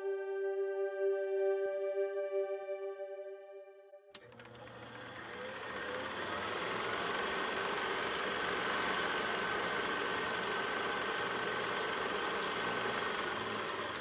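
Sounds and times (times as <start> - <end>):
machine-like whirring: 4.2 - 14.0.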